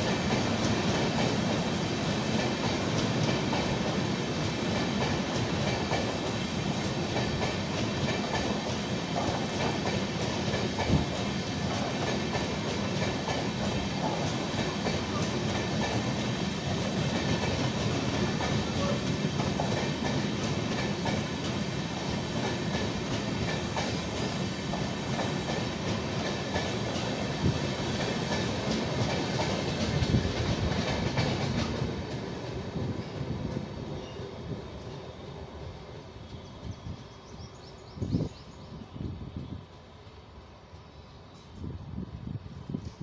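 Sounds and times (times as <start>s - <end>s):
train wheels clattering: 0.0s - 35.0s.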